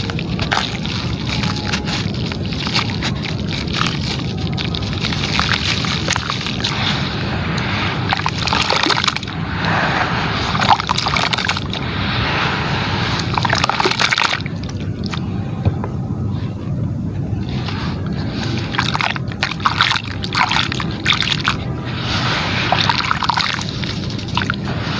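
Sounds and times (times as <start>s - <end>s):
material breaking up in water: 0.0s - 6.9s, 8.0s - 9.3s, 10.5s - 11.8s, 13.2s - 15.2s, 18.7s - 21.6s, 22.7s - 24.6s
water sloshing: 0.0s - 12.2s, 13.0s - 15.3s, 18.4s - 24.6s
hiss: 6.7s - 14.1s.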